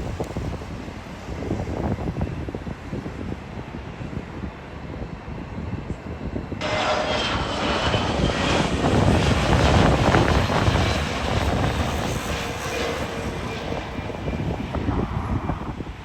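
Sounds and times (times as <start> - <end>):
jet engines passing: 6.4 - 16.0
high whining tones: 6.6 - 15.6.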